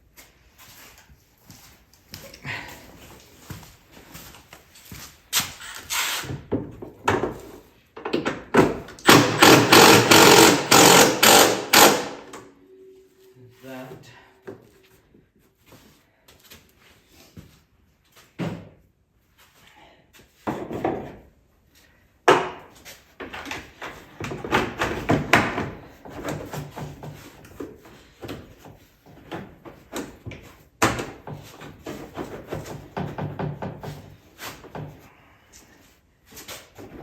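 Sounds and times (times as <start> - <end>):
tools knocking and clattering: 6.5 - 11.9, 28.2 - 34.1.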